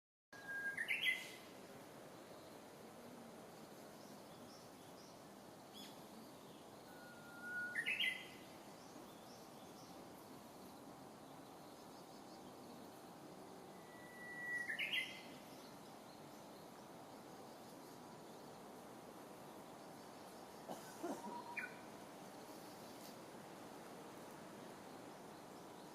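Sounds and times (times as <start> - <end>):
warbler singing: 3.9 - 13.0, 13.8 - 18.5, 19.4 - 21.9.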